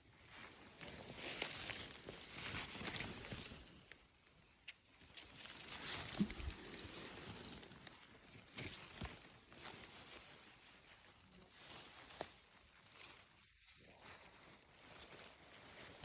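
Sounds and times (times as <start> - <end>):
rustling through undergrowth: 0.0 - 16.0.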